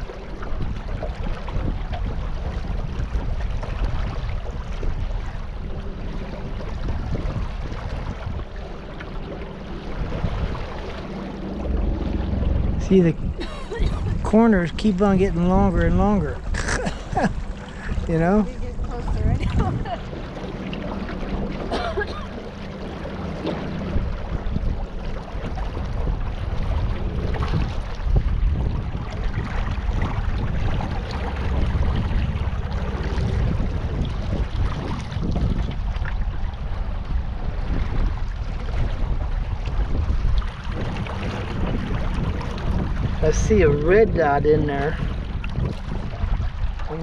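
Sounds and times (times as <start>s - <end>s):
low steady hum: 0.0s - 47.0s
water splashing around a boat: 0.0s - 47.0s
wind buffeting the microphone: 0.0s - 47.0s.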